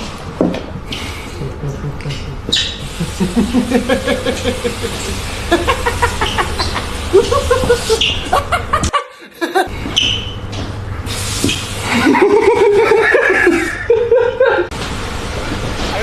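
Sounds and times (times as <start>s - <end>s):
person laughing: 1.1s - 9.7s, 11.8s - 14.7s.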